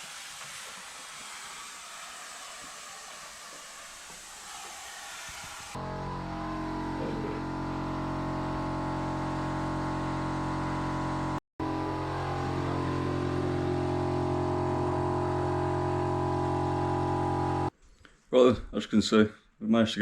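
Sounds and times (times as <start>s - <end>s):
vehicle engine running steadily: 5.8s - 17.7s.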